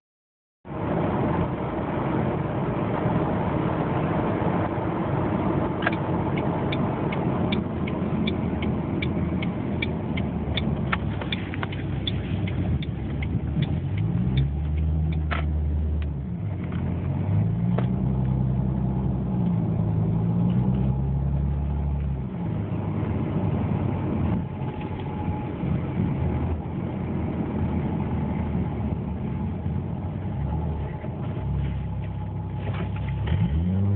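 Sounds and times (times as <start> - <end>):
road and wind noise: 0.6 - 33.9
car engine accelerating: 0.7 - 33.9
sharp ticks: 5.8 - 15.3.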